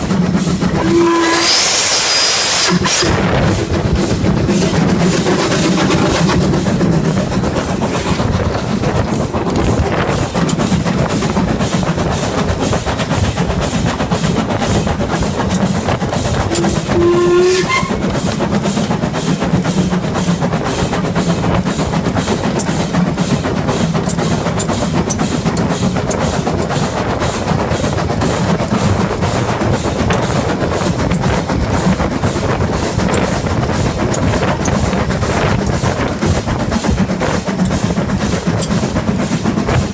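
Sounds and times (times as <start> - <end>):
steam locomotive chuffing: 0.0 - 39.9
steam whistle blast: 0.8 - 3.3, 16.5 - 18.1.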